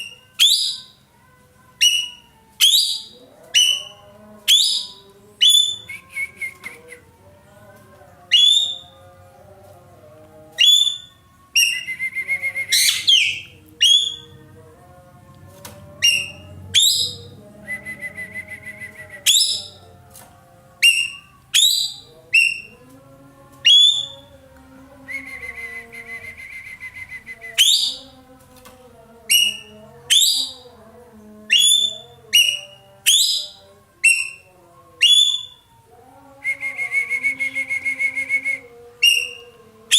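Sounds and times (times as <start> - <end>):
bird whistling: 0.0 - 0.9, 1.8 - 6.6, 8.3 - 8.9, 10.6 - 14.3, 16.0 - 19.8, 20.8 - 22.7, 25.3 - 28.1, 31.5 - 35.6, 36.8 - 39.5
buzzy rattling bird trill: 20.8 - 22.7.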